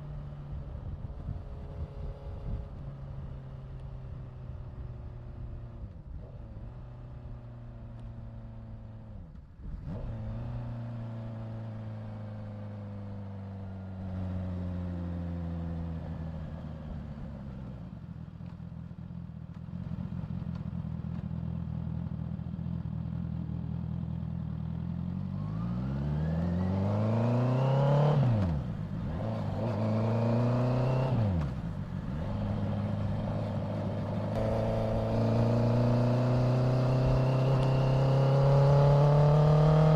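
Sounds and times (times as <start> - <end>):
motorcycle engine revving: 25.1 - 39.9.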